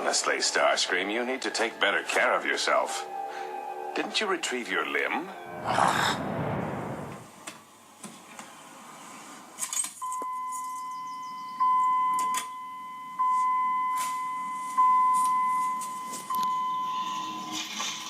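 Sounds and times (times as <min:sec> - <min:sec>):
steady electronic tone: 0:04.7 - 0:07.4.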